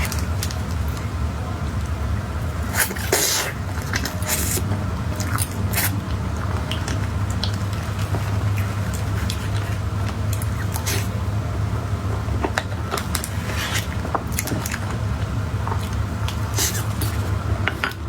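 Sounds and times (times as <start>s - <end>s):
steady low hum: 0.0s - 18.0s
soft squishy eating bites: 2.5s - 11.3s.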